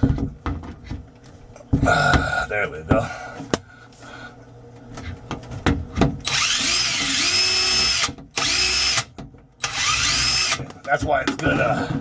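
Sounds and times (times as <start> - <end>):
power drill motor spinning: 6.2 - 10.7.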